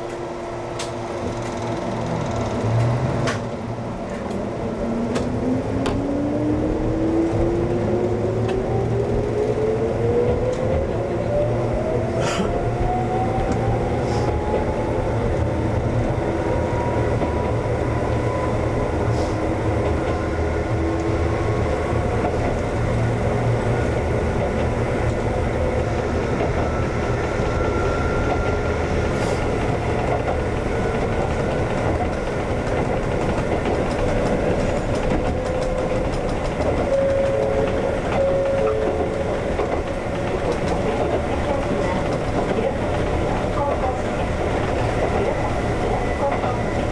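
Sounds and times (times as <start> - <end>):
train rolling rumble: 0.0 - 46.9
wheels clicking on rails: 0.8 - 3.5, 28.2 - 46.9.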